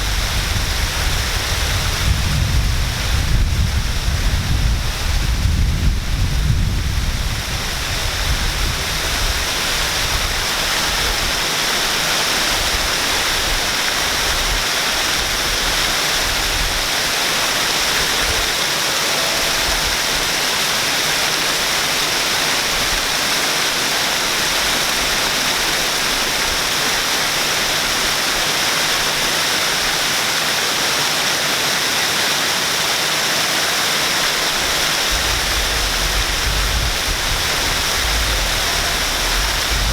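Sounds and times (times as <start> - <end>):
low rumble: 0.0 - 8.4, 35.1 - 39.9
waterfall rushing: 0.0 - 39.9.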